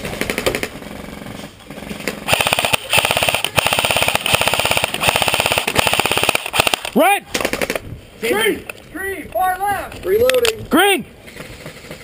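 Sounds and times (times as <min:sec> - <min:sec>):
airsoft rifles firing bursts: 0:00.0 - 0:07.8.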